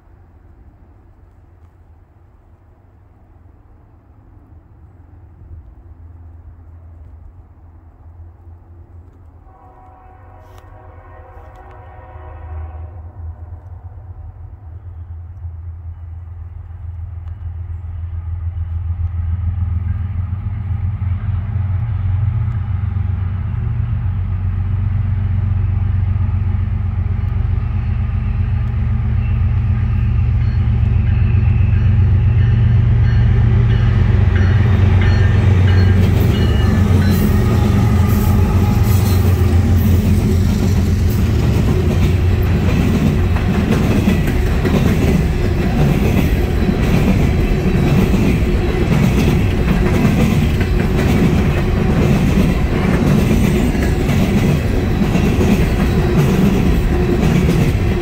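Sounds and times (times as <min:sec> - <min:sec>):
diesel locomotive rumble: 0:13.2 - 0:58.0
steel wheels clicking over rail joints: 0:34.3 - 0:58.0.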